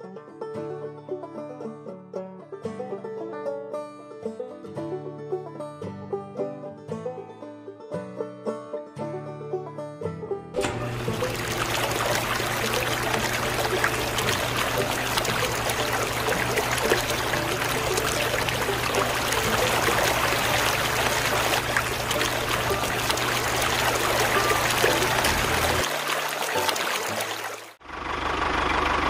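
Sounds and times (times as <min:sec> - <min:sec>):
water pump motor humming: 0:10.6 - 0:28.6
water splashing onto sand: 0:10.7 - 0:27.8.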